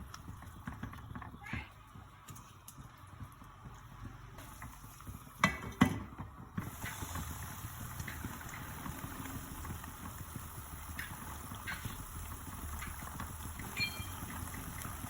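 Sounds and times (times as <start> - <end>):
frying oil sizzling: 6.6 - 15.0.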